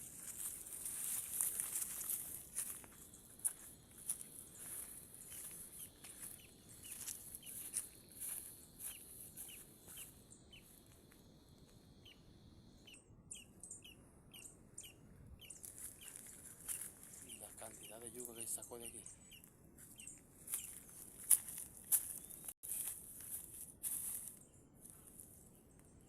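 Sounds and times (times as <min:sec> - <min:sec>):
small bird chirping: 0:00.2 - 0:22.9.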